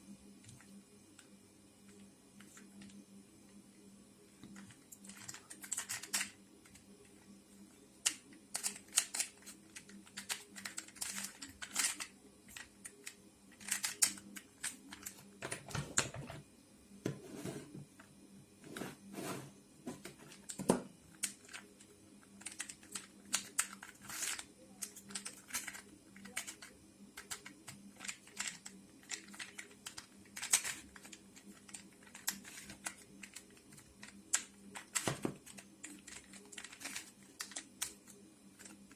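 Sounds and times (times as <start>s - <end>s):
plastic puzzle clicking: 4.6s - 6.8s, 8.0s - 16.0s, 22.4s - 38.9s.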